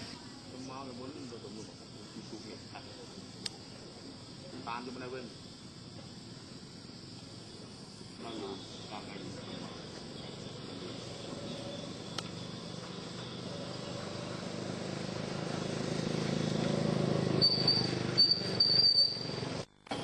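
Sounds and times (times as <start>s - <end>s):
high shrill chirping: 17.0s - 19.5s.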